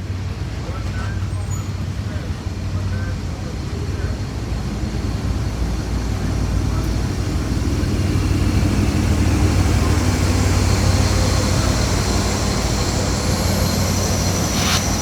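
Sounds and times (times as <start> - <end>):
diesel locomotive low drone: 0.0 - 15.0.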